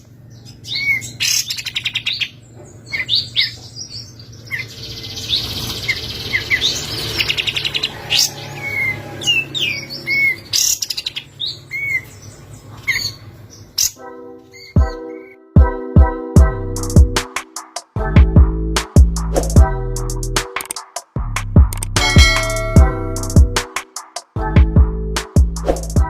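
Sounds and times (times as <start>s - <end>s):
songbird chirping and trilling: 0.0s - 17.0s.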